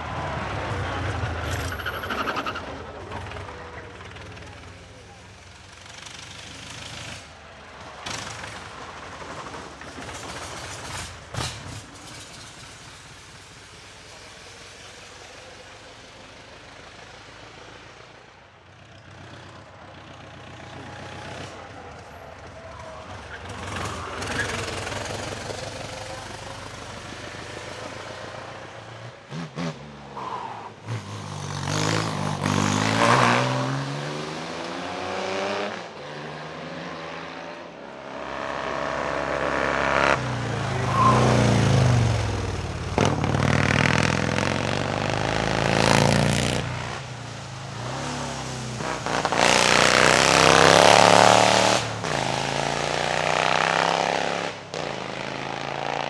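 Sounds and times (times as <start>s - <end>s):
racing car engines revving: 0.0s - 18.3s, 19.0s - 56.0s.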